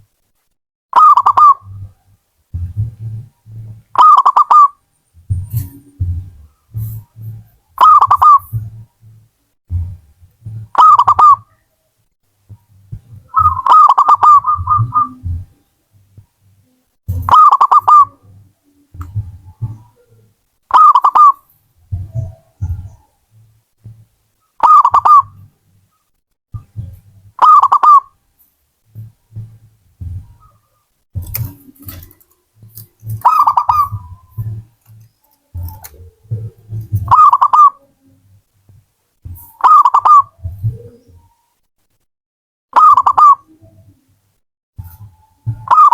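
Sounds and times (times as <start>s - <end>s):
dove cooing: 1.0s - 2.0s, 2.6s - 8.8s, 10.7s - 11.5s, 13.2s - 15.6s, 16.6s - 23.2s, 24.6s - 25.5s, 26.8s - 28.1s, 29.0s - 38.4s, 39.3s - 41.4s, 42.8s - 44.1s, 44.8s - 45.9s
soft low sounds: 1.6s - 4.1s, 4.8s - 17.4s, 18.0s - 42.0s
short low thuds: 1.8s - 4.0s, 5.1s - 10.8s, 18.3s - 20.0s, 21.8s - 24.2s, 28.9s - 37.2s.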